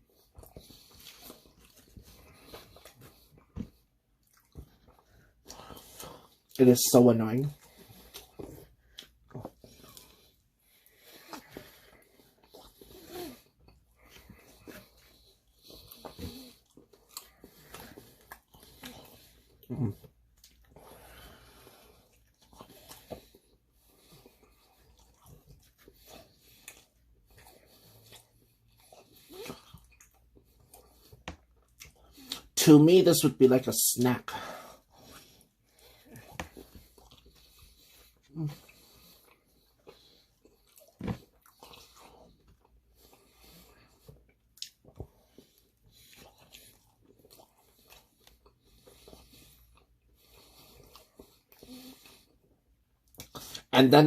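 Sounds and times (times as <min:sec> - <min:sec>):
quiet chewing with crunches: 0:00.0 - 0:06.6, 0:07.4 - 0:32.6, 0:34.4 - 0:53.7
wet mouth clicks: 0:44.6 - 0:44.8.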